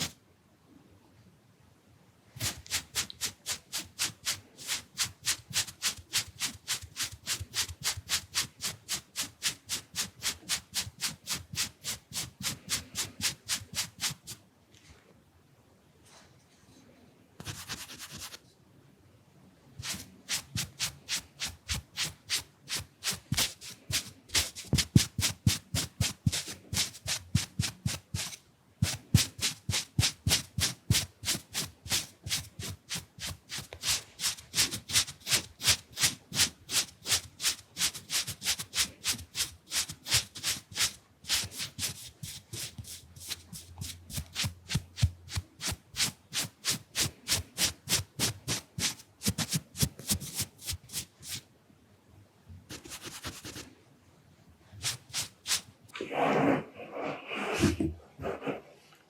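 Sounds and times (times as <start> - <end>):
brush rubbing on microphone: 2.4 - 14.4, 17.4 - 18.4, 19.8 - 51.4, 52.7 - 53.7, 54.8 - 55.7.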